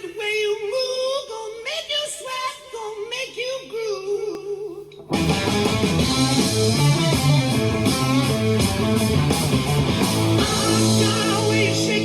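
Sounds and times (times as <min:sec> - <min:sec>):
rock music with electric guitar: 0:05.0 - 0:12.0.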